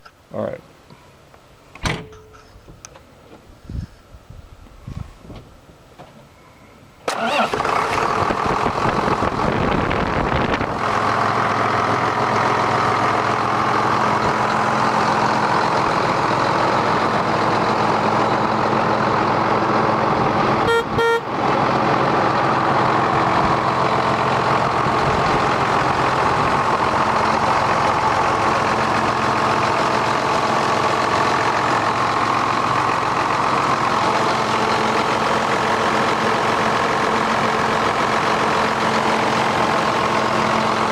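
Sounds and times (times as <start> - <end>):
tractor diesel engine running: 7.0 - 40.9
horn-like beep: 20.6 - 21.3.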